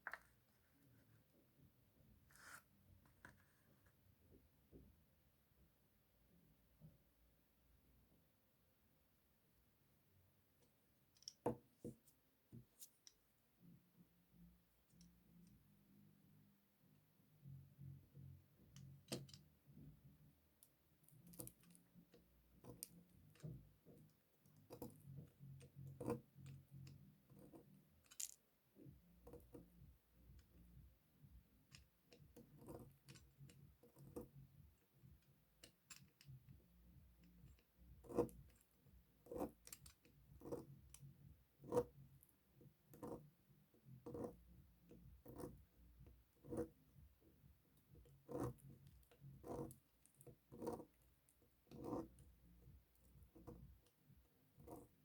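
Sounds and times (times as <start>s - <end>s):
knife cutting soap: 18.6s - 19.9s, 20.6s - 29.8s, 31.6s - 36.5s, 37.1s - 55.0s.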